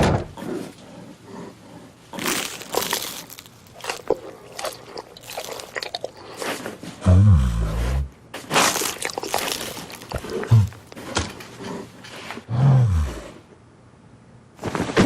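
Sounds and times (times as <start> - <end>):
low growls: 5.8 - 8.2, 9.3 - 13.5
rustling noise: 14.6 - 15.0.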